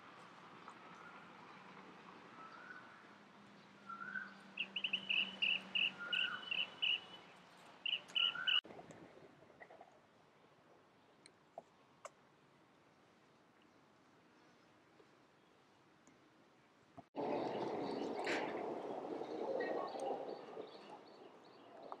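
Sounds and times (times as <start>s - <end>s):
faint outdoor ambience: 0.0s - 22.0s
birds rising whistles: 3.9s - 8.6s.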